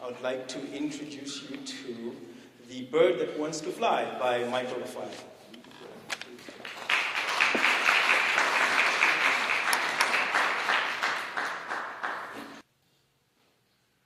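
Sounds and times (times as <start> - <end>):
audience applauding: 6.4 - 12.6.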